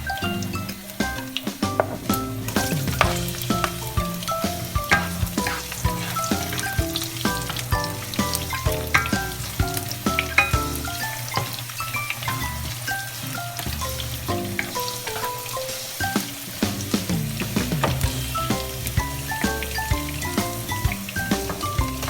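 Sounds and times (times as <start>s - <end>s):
food sizzling in a hot pan: 0.1s - 22.0s
utensil knocking against pan: 1.6s - 11.6s.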